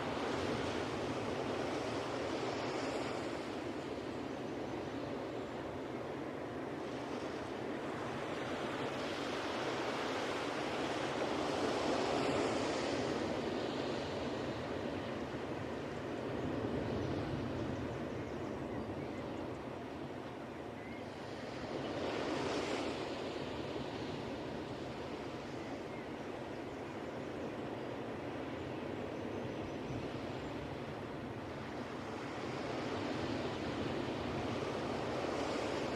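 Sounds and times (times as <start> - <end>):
ocean waves breaking: 19.3 - 26.6, 27.7 - 35.9.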